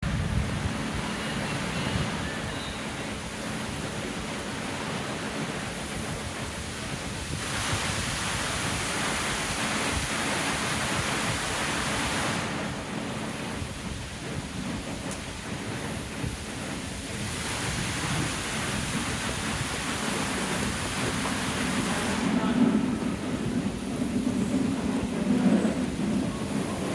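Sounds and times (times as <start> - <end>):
fountain water splashing: 3.1 - 13.0, 15.9 - 23.2.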